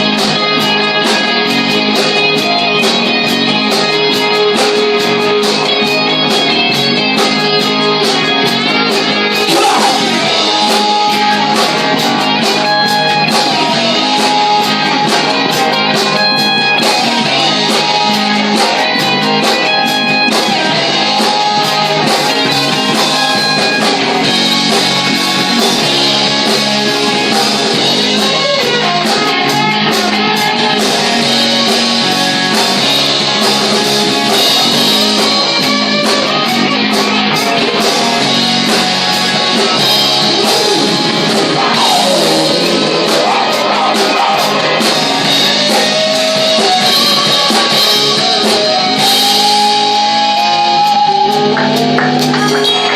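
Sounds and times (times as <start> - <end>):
live rock band playing: 0.0 - 52.9.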